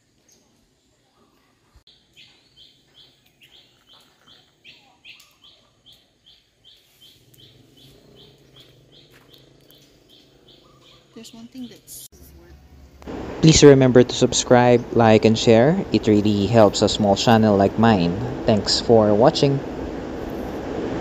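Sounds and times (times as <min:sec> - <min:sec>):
bird chirping: 0:00.0 - 0:12.6
faint low hum: 0:06.8 - 0:21.0.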